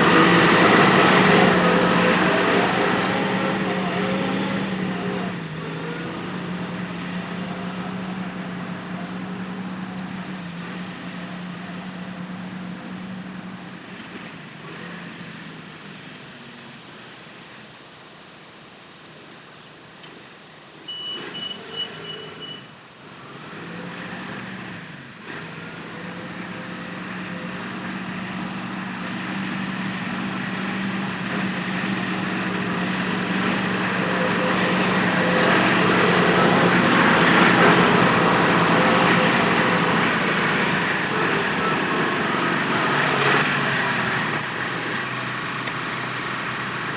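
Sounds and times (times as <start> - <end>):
tractor diesel engine running: 0.0 - 14.2, 25.1 - 46.9
high beeps: 20.9 - 22.7.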